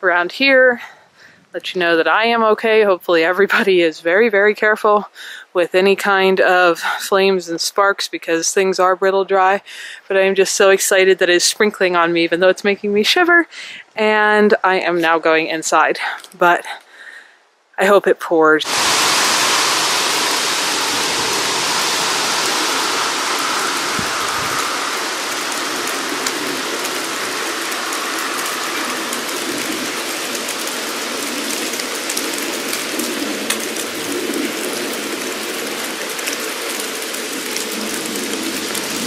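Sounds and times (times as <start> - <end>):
rain falling steadily: 18.6 - 39.0.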